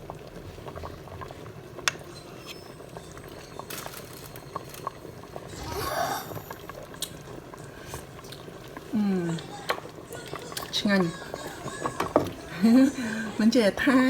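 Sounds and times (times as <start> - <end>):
porridge bubbling and popping: 0.0 - 14.0.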